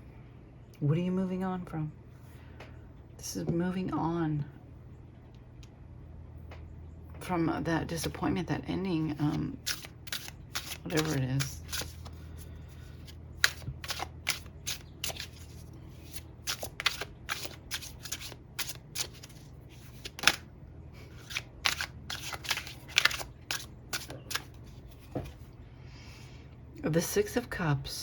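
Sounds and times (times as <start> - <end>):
cards being shuffled: 9.1 - 20.4, 21.0 - 25.5.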